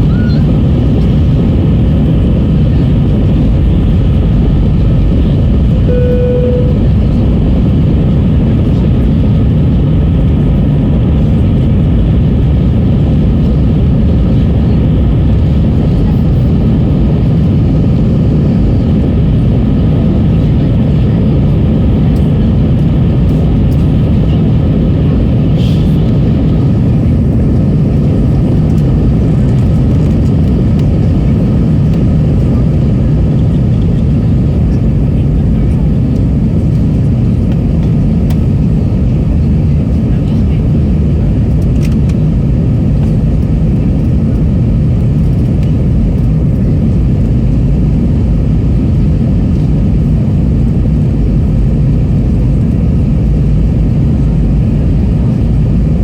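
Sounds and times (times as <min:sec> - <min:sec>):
jet engine and airflow rush: 0:00.0 - 0:56.0
cabin chime tone: 0:05.9 - 0:06.9.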